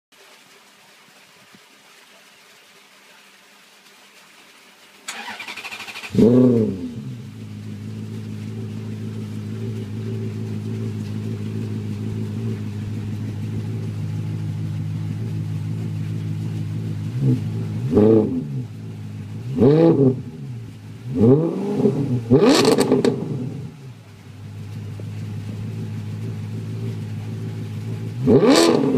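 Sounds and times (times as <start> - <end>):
starter cranking: 5.1 - 6.6
car engine idling: 5.1 - 28.9
engine throttle blips: 5.1 - 28.9.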